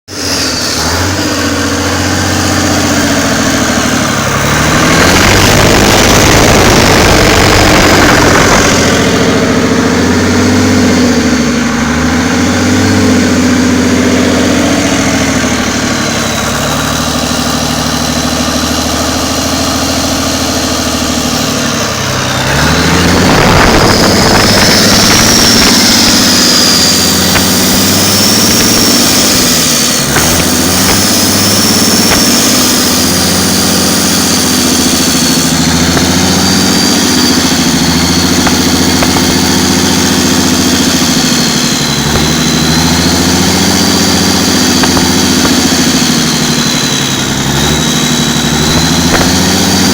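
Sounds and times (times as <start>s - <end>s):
diesel engine revving: 0.0s - 49.9s
high whine: 0.1s - 49.9s.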